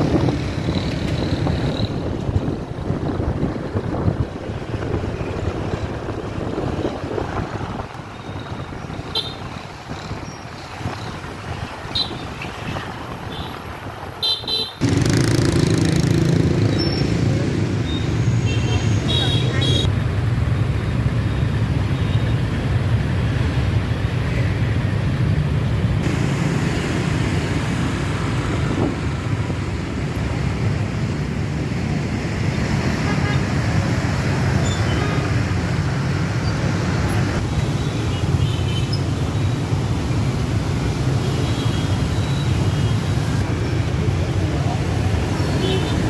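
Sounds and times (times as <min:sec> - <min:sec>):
road noise: 0:00.0 - 0:46.0
motorbike engines droning: 0:14.8 - 0:19.9.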